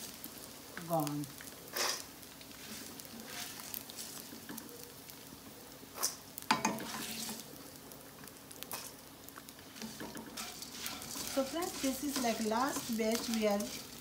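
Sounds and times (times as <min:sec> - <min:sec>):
gum sizzling in oil: 0:00.0 - 0:14.0
spatula scraping pan: 0:01.7 - 0:04.6, 0:06.0 - 0:07.4, 0:09.7 - 0:14.0.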